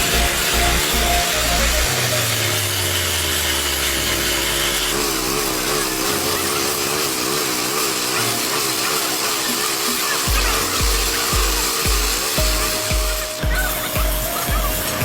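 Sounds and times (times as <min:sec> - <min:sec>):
power tool grinding steel: 0:00.0 - 0:15.0.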